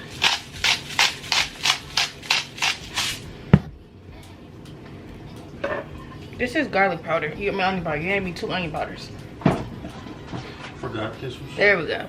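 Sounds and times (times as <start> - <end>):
spice shaker shaking: 0.0 - 3.2.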